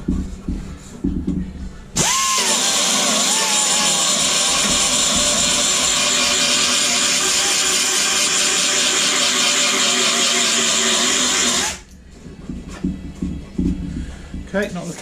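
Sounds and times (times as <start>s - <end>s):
power grinder grinding steel: 2.0s - 11.8s.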